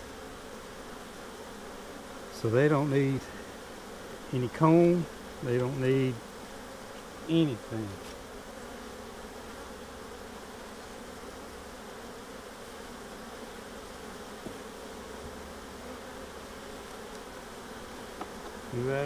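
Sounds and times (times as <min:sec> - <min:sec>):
honeybees buzzing: 0:00.0 - 0:19.0.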